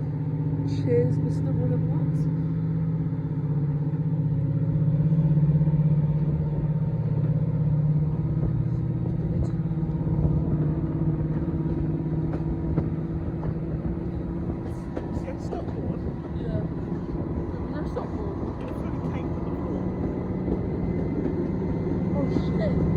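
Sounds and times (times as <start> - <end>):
diesel locomotive engine running: 0.0 - 22.9
moving train rumble: 0.0 - 22.9.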